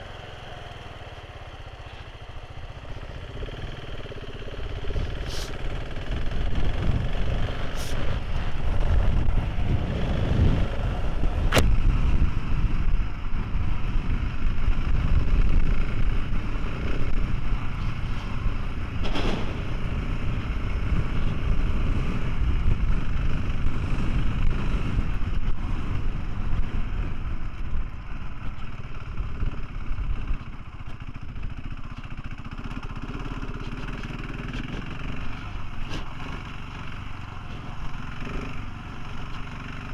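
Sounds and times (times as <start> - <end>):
motorcycle engine running: 0.0 - 39.9
wind rumble on microphone: 4.5 - 31.7.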